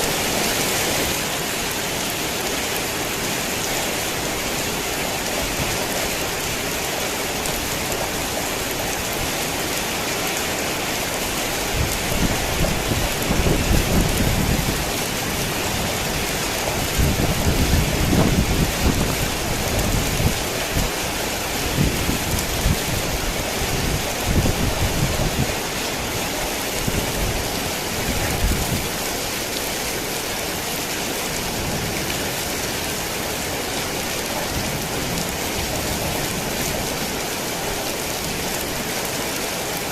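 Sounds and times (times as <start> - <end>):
heavy rain falling: 0.0 - 39.9
rolling thunder rumbles: 11.8 - 21.0.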